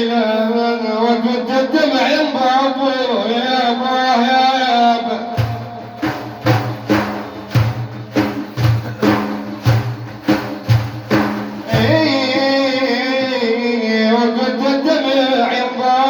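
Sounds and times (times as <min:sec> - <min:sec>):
frame drums with jingles: 0:05.4 - 0:13.6
people singing praise song: 0:11.6 - 0:16.0.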